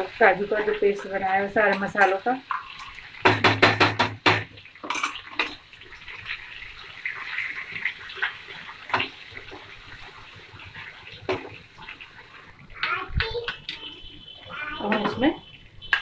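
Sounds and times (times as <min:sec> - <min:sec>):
paste sizzling in a frying pan: 0:00.0 - 0:16.0
spatula knocking against pan: 0:01.0 - 0:04.5.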